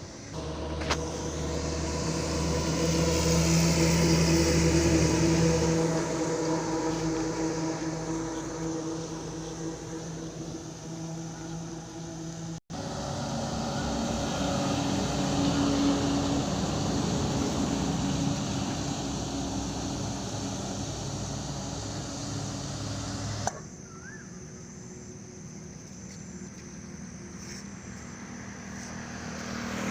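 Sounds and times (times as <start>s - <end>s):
heavy truck engine running: 0.0s - 23.5s
road and tyre noise: 0.0s - 29.9s.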